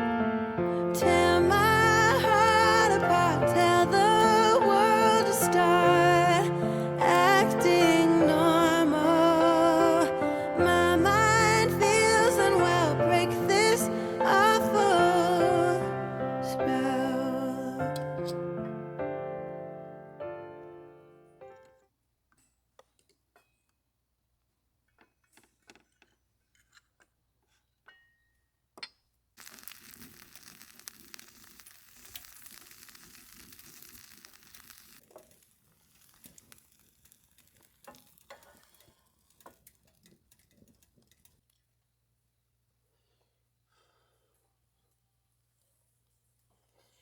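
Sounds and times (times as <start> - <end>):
food sizzling in a pan: 29.4 - 39.0.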